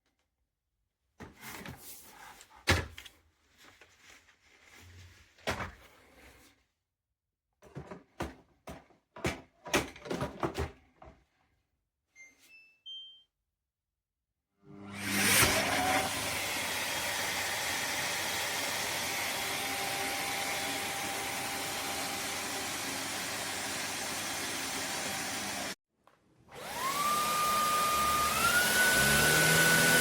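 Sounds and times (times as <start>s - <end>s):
plastic parts clicking and knocking: 7.6s - 11.2s.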